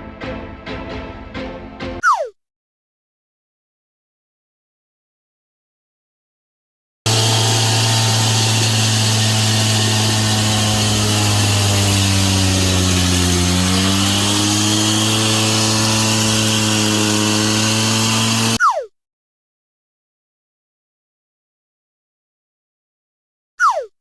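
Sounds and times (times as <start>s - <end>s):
power saw cutting through wall: 7.1s - 18.6s.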